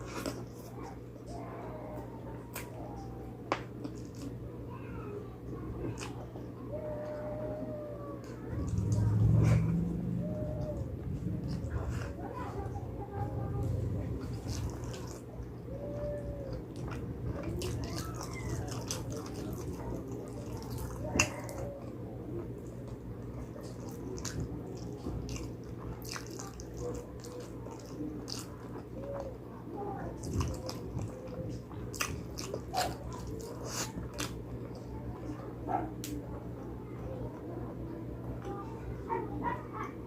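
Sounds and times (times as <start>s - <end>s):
low hum: 0.0s - 26.0s
person chewing: 3.7s - 4.4s, 13.3s - 29.4s, 30.0s - 34.9s.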